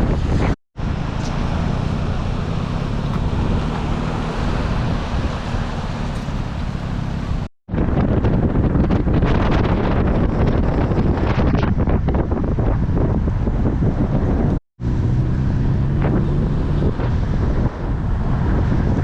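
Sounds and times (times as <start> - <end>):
wind buffeting microphone: 0.0 - 19.0
jeep engine running: 0.8 - 7.5.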